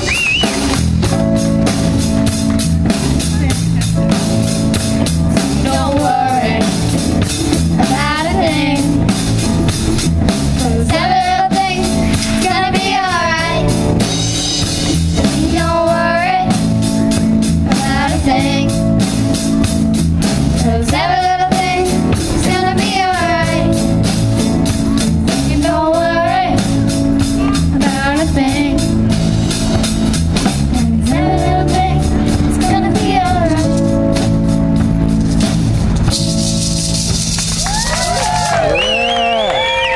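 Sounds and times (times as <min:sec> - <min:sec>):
band playing a song: 0:00.0 - 0:39.9
person singing: 0:05.4 - 0:06.8.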